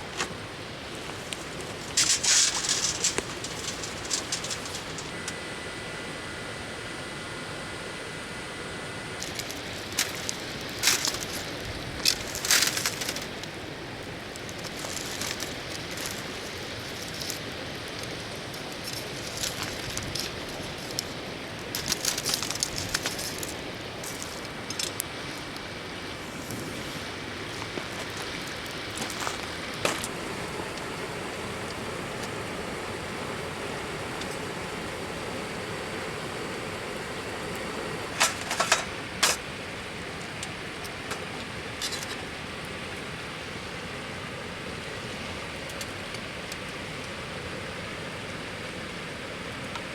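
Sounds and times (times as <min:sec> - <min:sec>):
sharp clicks and crackles: 0:01.0 - 0:05.4, 0:09.2 - 0:13.6, 0:14.3 - 0:25.7.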